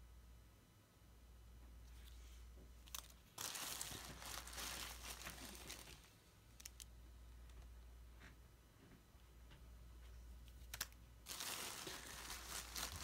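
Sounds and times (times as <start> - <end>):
packaging crinkling: 2.8 - 6.9, 10.6 - 13.0.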